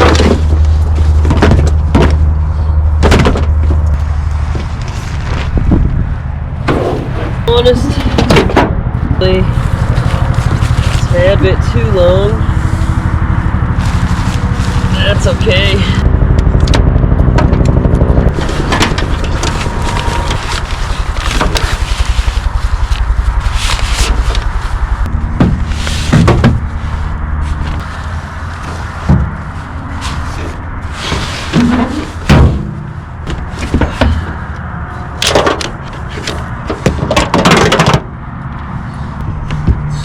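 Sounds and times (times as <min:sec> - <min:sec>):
metal tent parts knocking: 0:00.0 - 0:04.8, 0:07.9 - 0:08.8, 0:25.1 - 0:26.8
motor rumbling: 0:00.0 - 0:37.4, 0:38.1 - 0:40.0
tent rustling and scraping: 0:03.9 - 0:08.1, 0:09.2 - 0:16.0, 0:18.3 - 0:35.1.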